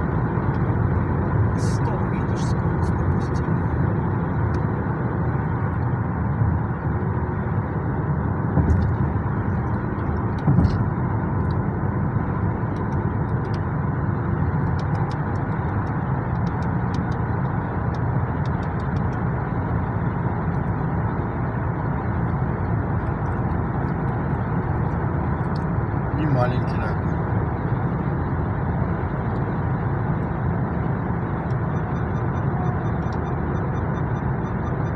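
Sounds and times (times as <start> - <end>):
car tyres and engine rumbling: 0.0 - 34.9
car bumps: 8.6 - 9.1, 10.4 - 10.9.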